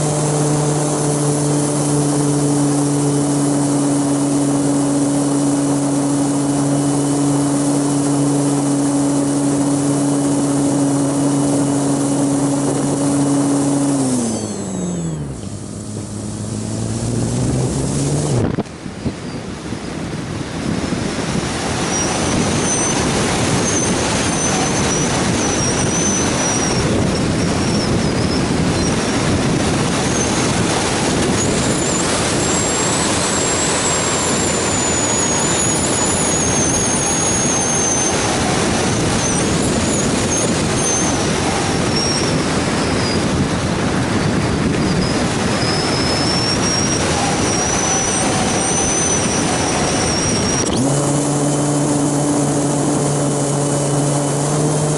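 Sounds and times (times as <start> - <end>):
wind buffeting microphone: 0.0 - 54.9
thin high whine: 21.2 - 43.4, 44.8 - 54.9.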